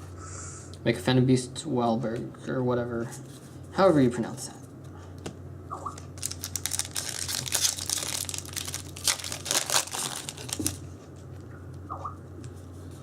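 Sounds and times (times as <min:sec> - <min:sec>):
steady low hum: 0:00.0 - 0:13.0
foil wrapper crinkling and tearing: 0:06.2 - 0:10.9.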